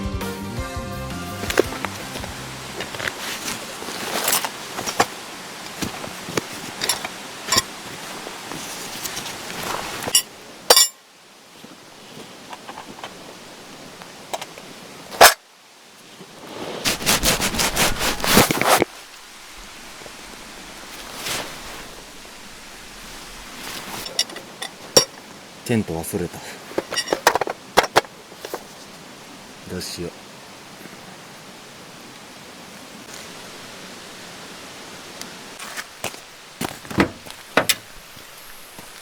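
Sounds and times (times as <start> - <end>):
zipper rasping: 1.4 - 10.1, 16.4 - 18.8
gear rustling and clicking: 1.4 - 10.9, 26.7 - 28.8.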